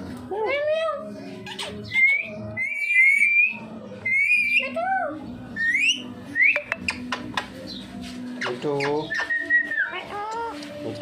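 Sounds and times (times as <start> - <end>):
parrot whistling: 1.4 - 4.8, 5.6 - 7.0, 8.4 - 10.4.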